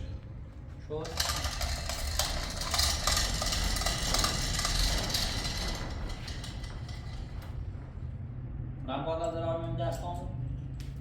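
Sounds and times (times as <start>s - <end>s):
machine low rumble: 0.0s - 9.9s
machine rattling clatter: 0.9s - 8.3s.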